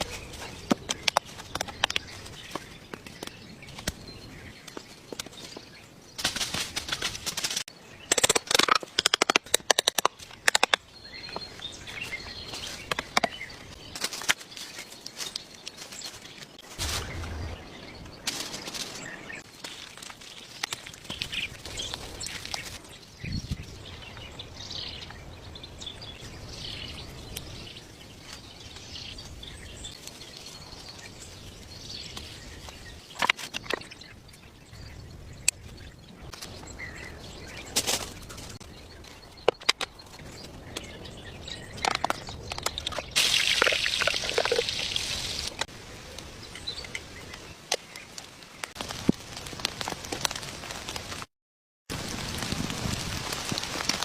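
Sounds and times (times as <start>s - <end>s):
birds chirping: 0.0s - 48.8s
sharp clicks and cracks: 6.2s - 10.8s.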